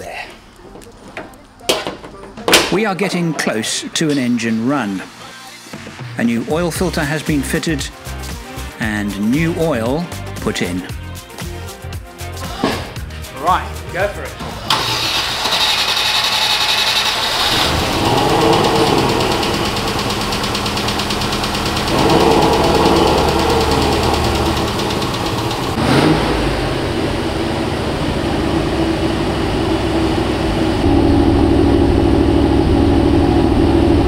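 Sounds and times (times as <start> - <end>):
petrol engine idling and revving: 14.7 - 34.0.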